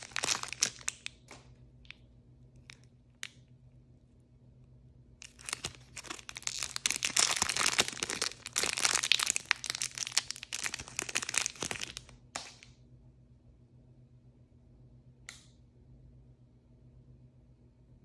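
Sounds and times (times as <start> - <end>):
plastic packaging crinkling: 0.0 - 1.5, 5.2 - 12.7.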